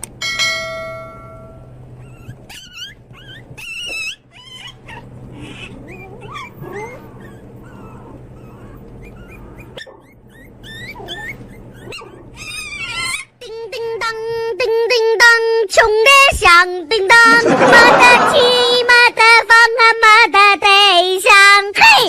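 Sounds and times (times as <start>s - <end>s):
puppy whimpering: 1.9s - 13.5s.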